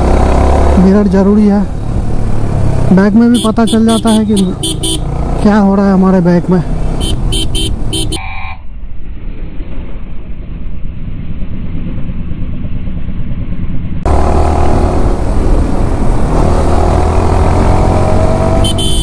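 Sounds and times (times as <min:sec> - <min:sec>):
motorcycle engine accelerating: 0:00.0 - 0:03.3, 0:04.0 - 0:08.1, 0:11.5 - 0:19.0.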